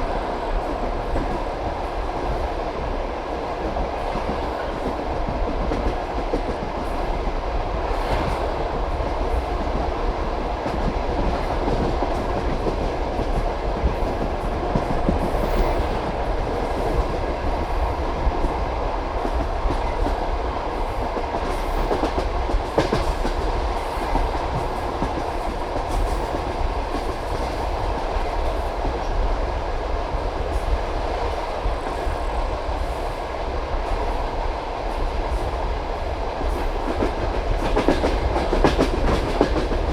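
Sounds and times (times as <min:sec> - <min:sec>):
train wheels rumbling on rails: 0:00.0 - 0:39.9
wheels clacking on rail joints: 0:36.5 - 0:39.9.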